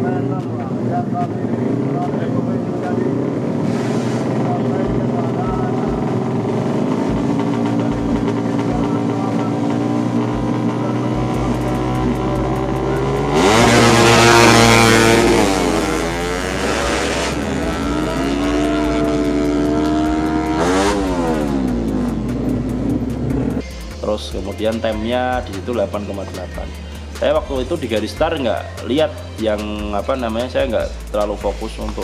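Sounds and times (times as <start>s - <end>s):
motorcycle engine revving: 0.0s - 23.8s.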